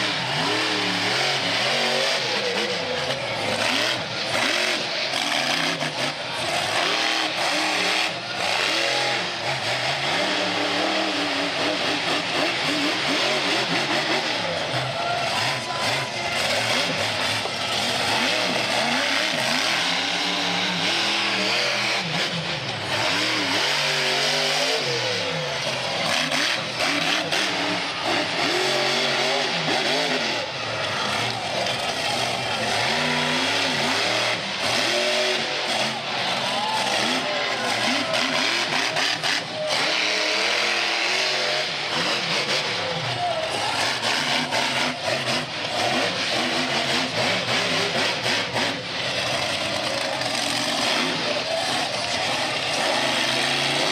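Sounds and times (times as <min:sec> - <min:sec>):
monster truck engine revving: 0:00.0 - 0:53.9.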